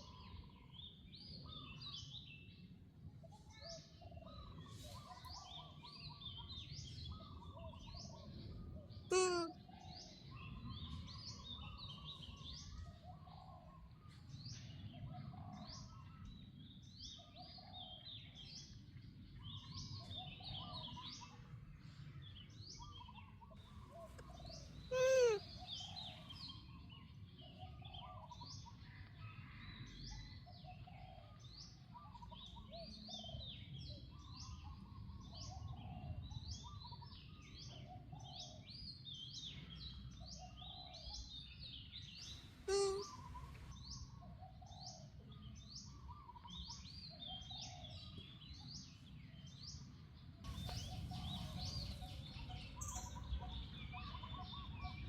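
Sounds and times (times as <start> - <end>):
birds chirping: 9.1 - 9.5, 22.8 - 27.6, 41.9 - 43.4
loud pitched bird calls: 9.1 - 9.5, 24.5 - 26.2, 42.7 - 43.3.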